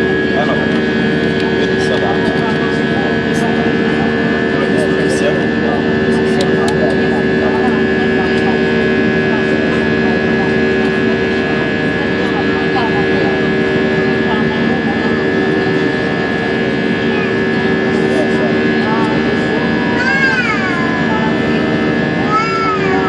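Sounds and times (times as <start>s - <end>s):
jet engines droning: 0.0s - 23.0s
steady humming tones: 0.0s - 23.0s.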